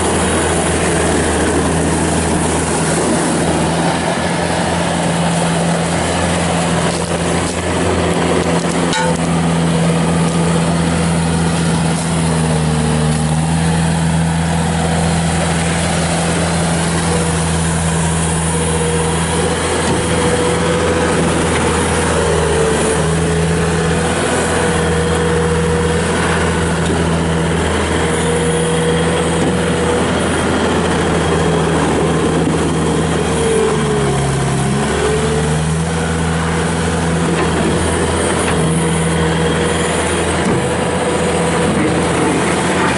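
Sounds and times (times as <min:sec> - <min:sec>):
high wavering whine: 0:00.0 - 0:13.9
diesel engine running: 0:00.0 - 0:42.9.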